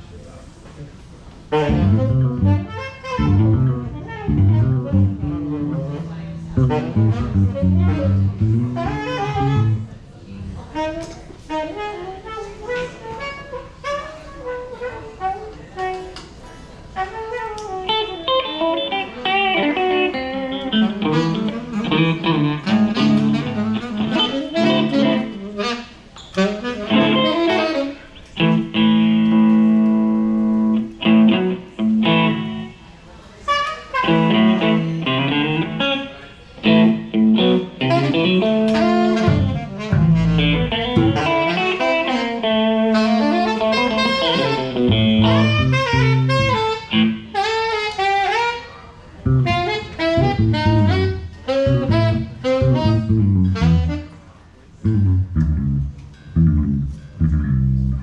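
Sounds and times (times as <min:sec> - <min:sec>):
live jazz blues band: 0:01.5 - 0:09.9, 0:10.5 - 0:16.2, 0:16.9 - 0:32.8, 0:33.4 - 0:48.6, 0:49.2 - 0:54.2, 0:54.8 - 0:58.0
lead guitar: 0:01.5 - 0:12.0, 0:17.2 - 0:25.8, 0:26.4 - 0:32.8, 0:33.9 - 0:48.4, 0:49.2 - 0:54.1, 0:54.8 - 0:58.0
low bass notes: 0:01.6 - 0:10.6, 0:20.7 - 0:25.4, 0:28.4 - 0:32.7, 0:36.6 - 0:47.4, 0:49.3 - 0:54.1, 0:54.8 - 0:58.0.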